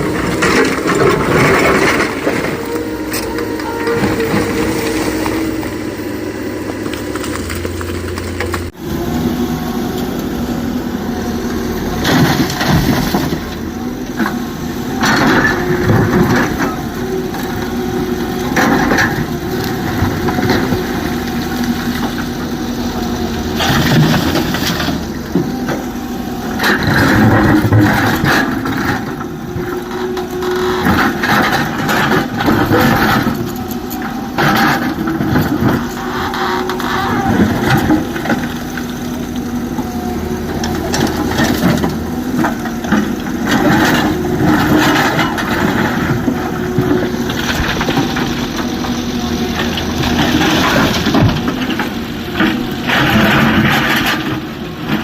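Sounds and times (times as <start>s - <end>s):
excavator diesel engine: 0.0s - 55.0s
stones crunching and cracking: 6.7s - 8.7s.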